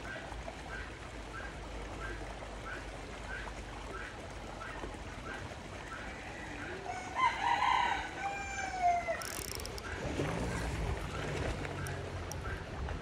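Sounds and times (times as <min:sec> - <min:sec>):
rooster crowing: 0:06.2 - 0:09.5.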